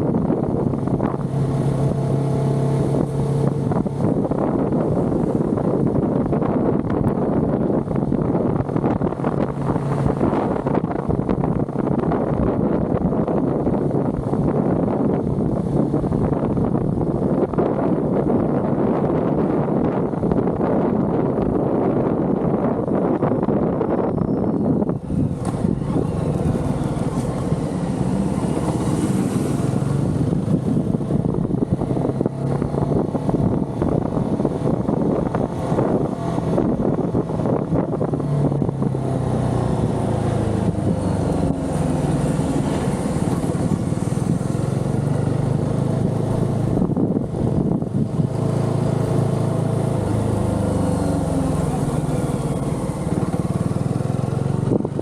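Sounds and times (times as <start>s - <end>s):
motorcycle engine revving: 24.5s - 55.0s.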